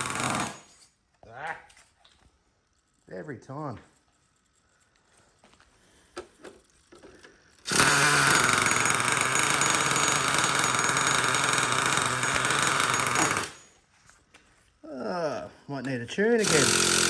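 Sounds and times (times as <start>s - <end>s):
electric starter spinning engine: 7.6s - 13.7s, 16.4s - 17.0s.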